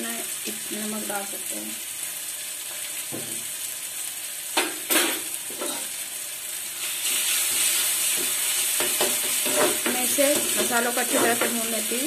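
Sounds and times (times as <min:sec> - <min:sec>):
masala sizzling in hot oil: 0:00.0 - 0:12.0
spatula stirring: 0:07.0 - 0:11.7.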